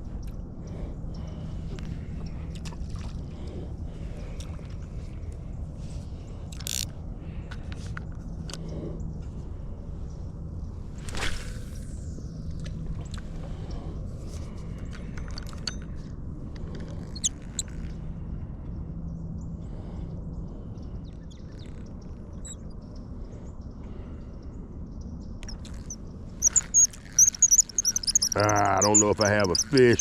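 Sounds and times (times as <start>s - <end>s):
low outdoor rumble: 0.0s - 30.0s
faint bird chirps: 20.4s - 30.0s.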